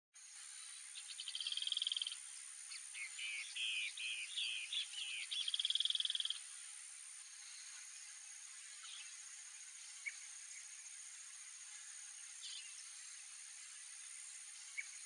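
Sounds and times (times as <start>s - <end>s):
steady high background hiss: 0.2s - 15.0s
small bird singing trills: 0.8s - 6.5s.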